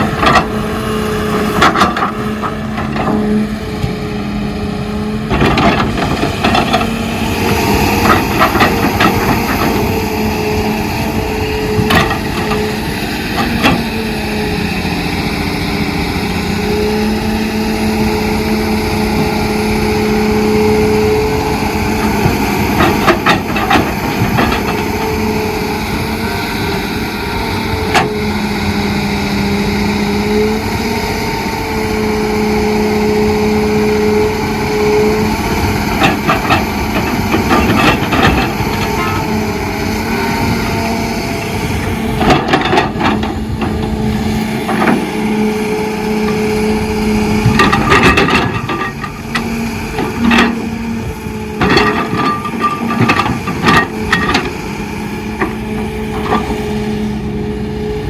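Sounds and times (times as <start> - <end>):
excavator diesel engine running: 0.0 - 58.0
knocks and clanks: 5.3 - 6.9, 7.9 - 10.0, 22.0 - 25.1, 35.6 - 39.5, 41.8 - 45.2, 47.2 - 50.8, 51.6 - 54.6.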